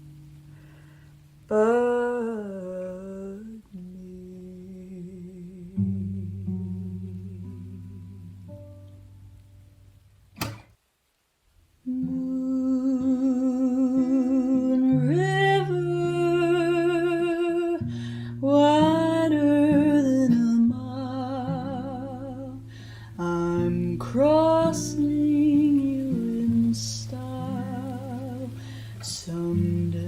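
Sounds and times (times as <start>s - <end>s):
woman singing with vibrato: 1.5s - 8.5s, 11.8s - 30.0s
plucked acoustic guitar: 4.3s - 10.7s, 13.0s - 30.0s.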